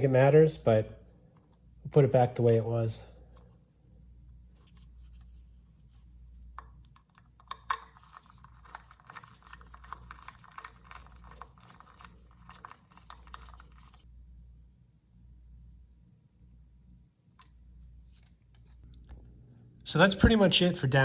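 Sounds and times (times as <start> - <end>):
small metal parts clicking: 6.6 - 14.0.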